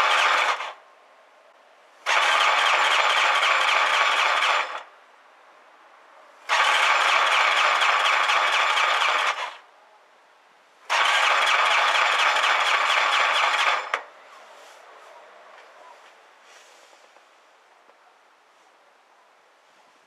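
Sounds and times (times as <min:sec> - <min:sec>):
electric starter cranking engine: 0:00.0 - 0:00.8, 0:02.0 - 0:04.9, 0:06.5 - 0:09.6, 0:10.9 - 0:14.1.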